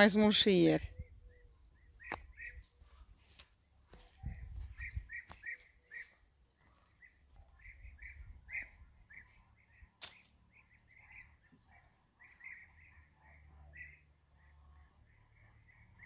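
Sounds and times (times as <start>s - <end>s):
small birds chirping faintly: 0.2s - 16.0s
sharp snap: 10.0s - 10.3s.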